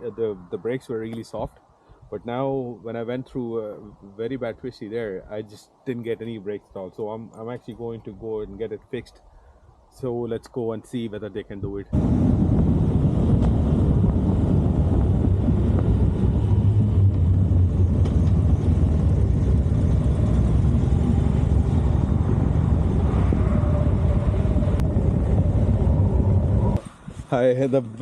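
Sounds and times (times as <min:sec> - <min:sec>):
motorcycle engine rumbling: 0:11.9 - 0:27.1
rushing air: 0:11.9 - 0:27.6.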